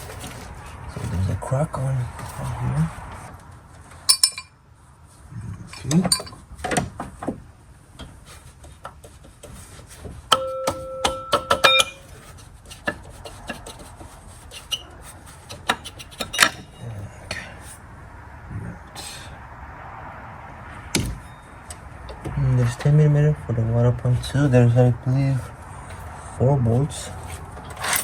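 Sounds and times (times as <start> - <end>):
metal tools clinking and knocking: 4.0 - 4.6, 5.7 - 6.4, 10.3 - 14.0, 14.6 - 16.9, 27.0 - 28.0.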